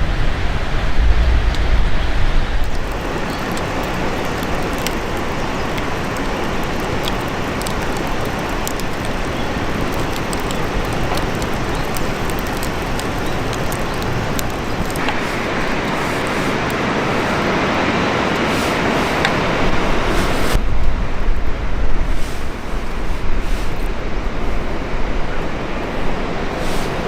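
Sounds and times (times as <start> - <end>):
campfire crackling: 1.2 - 20.7
fire hiss: 2.5 - 20.7, 25.9 - 27.0.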